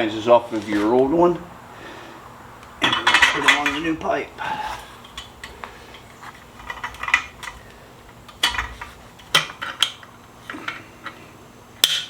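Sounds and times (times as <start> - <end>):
metal flanges clinking and scraping: 2.8 - 11.2.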